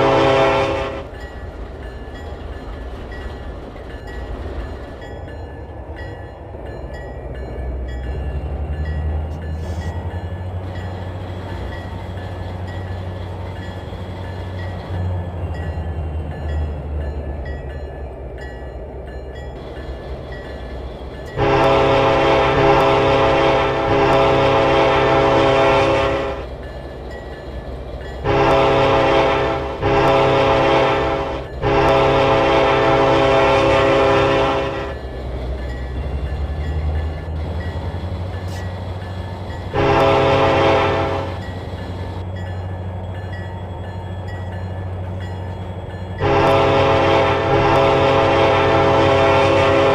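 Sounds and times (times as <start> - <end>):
locomotive air horn blasts: 0.0 - 1.1, 21.4 - 26.4, 28.2 - 35.0, 39.7 - 41.4, 46.2 - 49.9
passing train rumble: 0.0 - 49.9.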